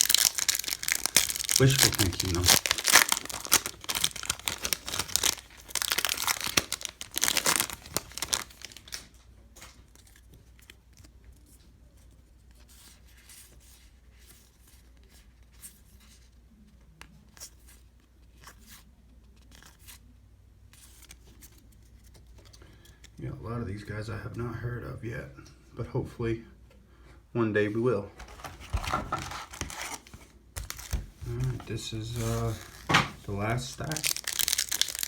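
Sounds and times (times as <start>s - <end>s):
card pack wrapper ripping and crinkling: 0.0s - 11.1s, 28.2s - 35.0s.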